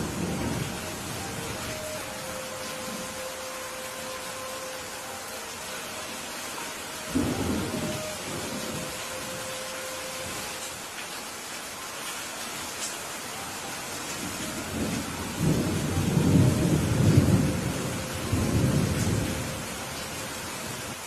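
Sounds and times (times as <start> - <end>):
steady rain: 0.0 - 21.0
thunder rolling: 7.1 - 9.3, 14.7 - 19.7.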